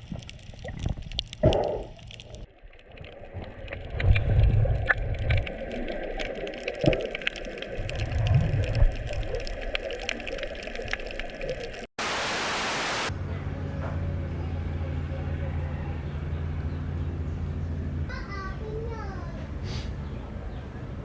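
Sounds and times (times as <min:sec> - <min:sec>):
underwater crackling ticks: 0:00.0 - 0:04.2, 0:04.8 - 0:11.8
underwater bubbling: 0:00.0 - 0:11.9
loud hiss: 0:12.0 - 0:13.1
low engine drone: 0:12.1 - 0:21.0.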